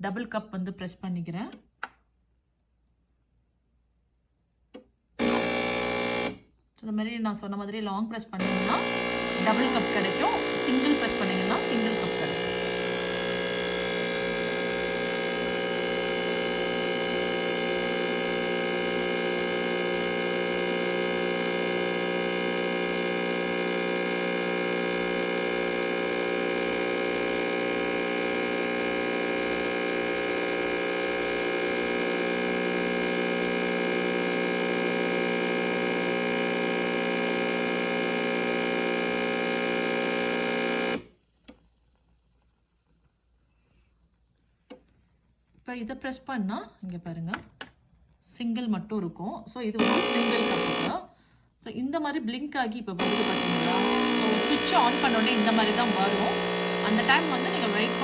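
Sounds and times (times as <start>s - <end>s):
espresso machine pump humming: 5.2s - 6.4s, 8.4s - 41.6s, 49.8s - 51.0s, 53.0s - 58.0s.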